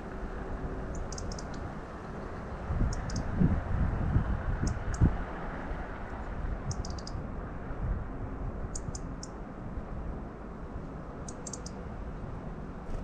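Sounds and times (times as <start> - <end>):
songbirds chirping: 0.0 - 3.3, 11.2 - 11.8.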